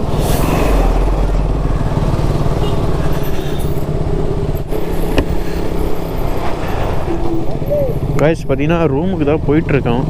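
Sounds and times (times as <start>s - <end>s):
motorcycle engine running: 0.9s - 6.1s.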